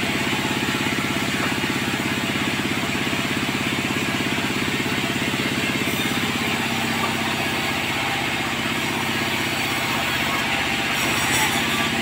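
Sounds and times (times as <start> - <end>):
sawmill engine running: 0.0 - 12.0.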